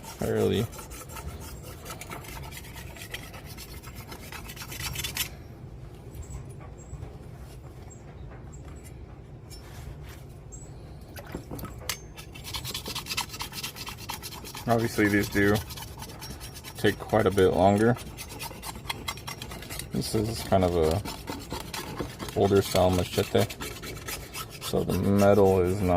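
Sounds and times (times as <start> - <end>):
sharpening stone scraping machete: 0.0 - 5.3, 11.9 - 25.9.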